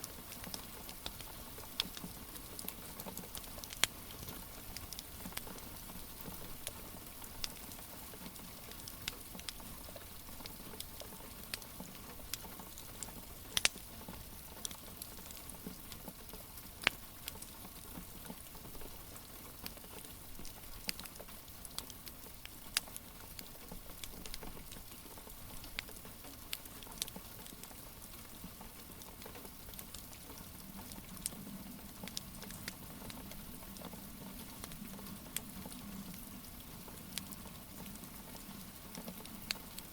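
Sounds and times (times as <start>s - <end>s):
wood fire crackling: 0.0s - 39.9s
rain hissing: 28.1s - 39.9s.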